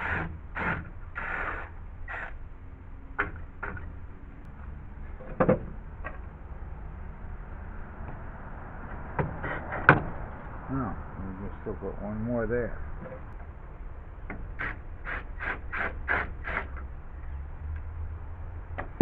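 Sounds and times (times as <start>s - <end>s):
squeaky bursts: 0.0s - 2.4s
low steady rumble: 0.0s - 19.0s.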